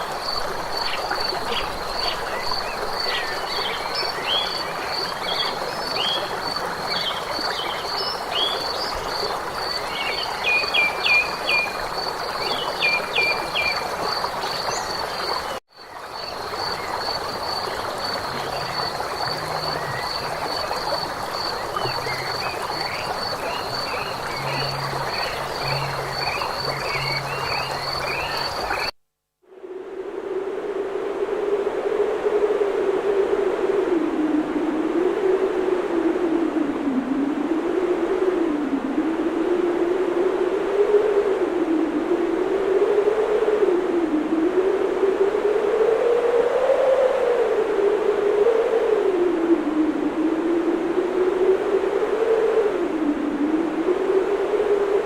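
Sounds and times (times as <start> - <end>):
constant hiss: 0.0 - 28.9
frogs croaking: 0.0 - 28.9
high pulsing insect calls: 0.0 - 28.9.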